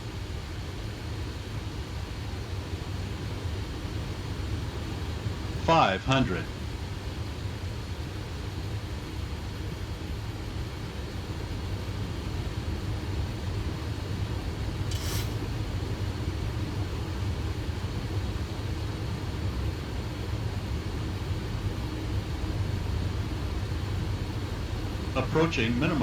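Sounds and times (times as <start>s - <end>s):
cockpit airflow and engine rumble: 0.0s - 26.0s
short hiss: 14.9s - 15.5s.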